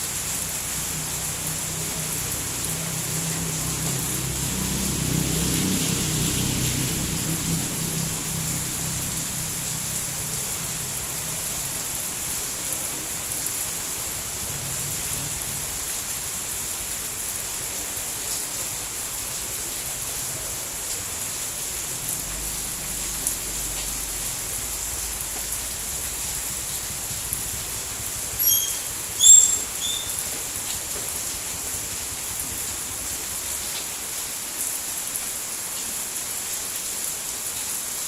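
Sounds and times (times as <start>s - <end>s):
steady rain falling: 0.0s - 38.0s
faint drips and ticks: 8.2s - 36.0s.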